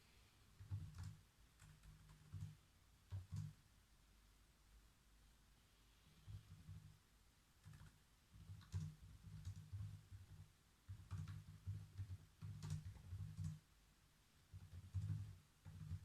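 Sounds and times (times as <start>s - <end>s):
faint keyboard typing: 0.5s - 3.7s, 6.1s - 7.0s, 7.6s - 13.8s, 14.4s - 16.0s.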